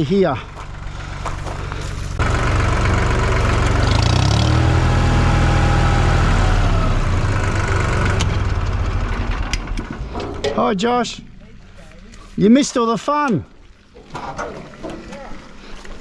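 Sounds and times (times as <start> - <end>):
vehicle engine revving under load: 0.6 - 10.2.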